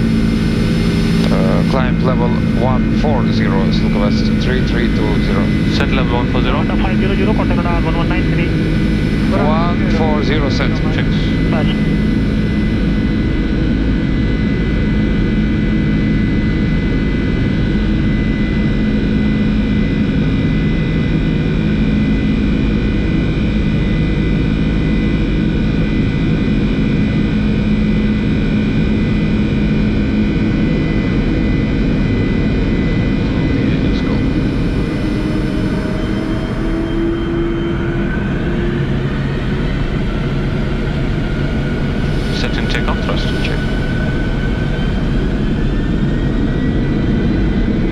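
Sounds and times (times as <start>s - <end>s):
jet engine and airflow rush: 0.0s - 13.9s, 30.6s - 47.9s
steady hum tones: 0.0s - 23.8s, 24.4s - 47.9s.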